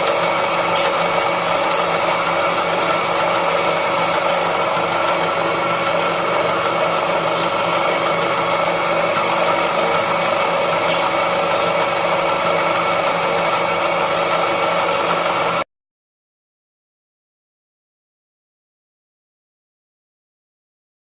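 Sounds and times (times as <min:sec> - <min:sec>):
noodle machine motor humming: 0:00.0 - 0:15.6.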